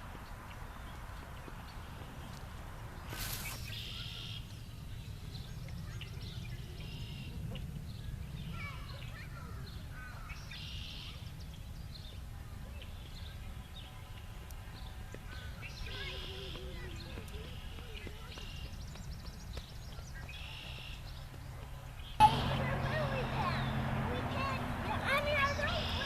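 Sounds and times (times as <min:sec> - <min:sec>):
birds chirping and whistling: 0:22.0 - 0:26.0.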